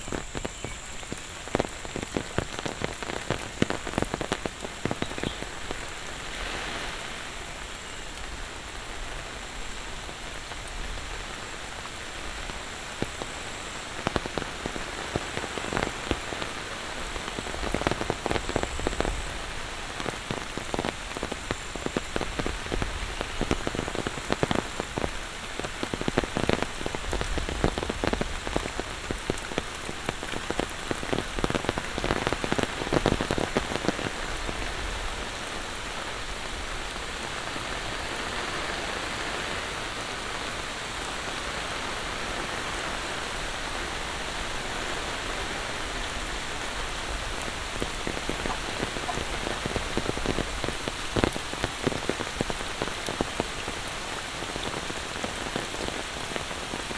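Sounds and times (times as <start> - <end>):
close raindrop hits: 0.0 - 9.3, 45.7 - 56.9
heavy rain falling: 0.0 - 56.9.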